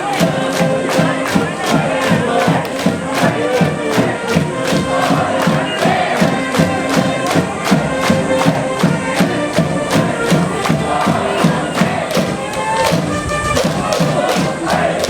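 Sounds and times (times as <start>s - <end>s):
crowd singing along: 0.0s - 15.0s
steady drum beat: 0.0s - 15.0s
wind band playing fight song: 0.0s - 15.0s.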